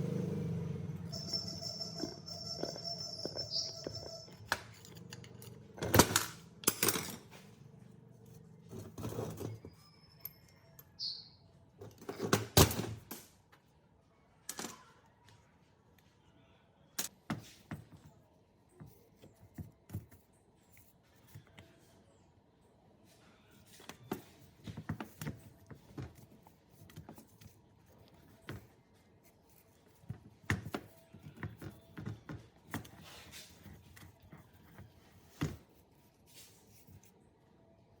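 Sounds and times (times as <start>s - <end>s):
parts knocking and clinking: 1.1s - 7.5s.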